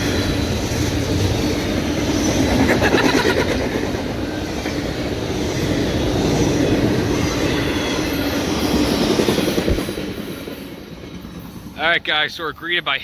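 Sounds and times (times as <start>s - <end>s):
rumble of wheels on rails: 0.0s - 13.0s.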